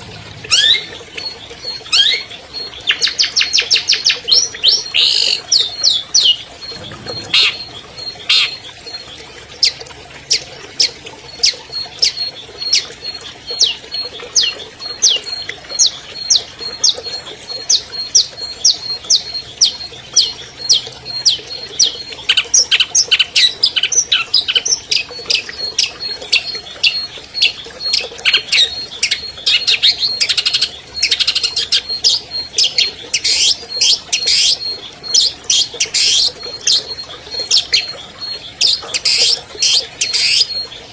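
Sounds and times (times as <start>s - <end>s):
bird singing sharp high notes: 5.0s - 9.0s.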